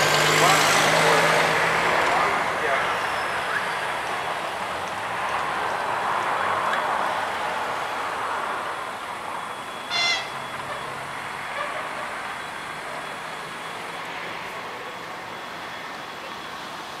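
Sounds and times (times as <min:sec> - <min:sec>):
short high-pitched tone: 0:09.8 - 0:11.0.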